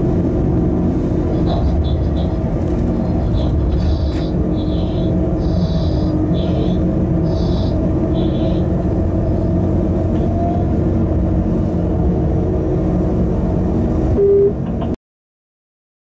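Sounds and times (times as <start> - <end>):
freight train rumbling: 0.0 - 15.0
short higher tone: 14.2 - 14.7.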